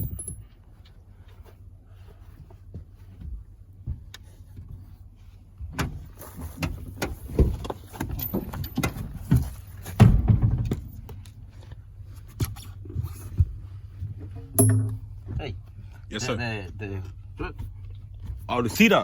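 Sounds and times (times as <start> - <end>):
metallic clinks: 0.0 - 0.6, 14.6 - 15.2.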